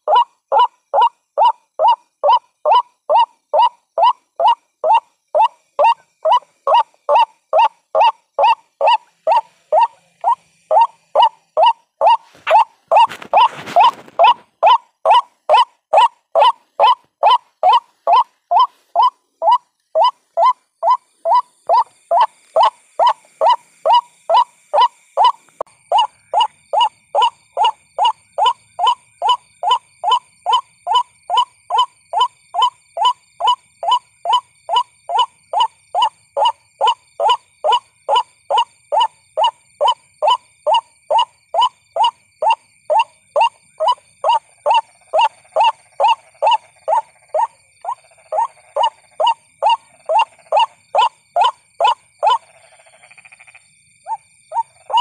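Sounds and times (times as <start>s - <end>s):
waterhen calling: 0.0s - 52.5s, 54.1s - 55.0s.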